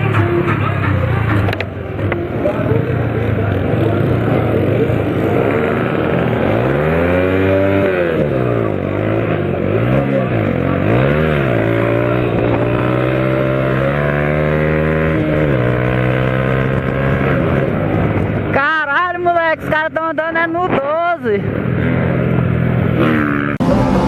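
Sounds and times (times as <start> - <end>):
vehicle engine revving: 0.0 - 18.6, 21.4 - 24.0.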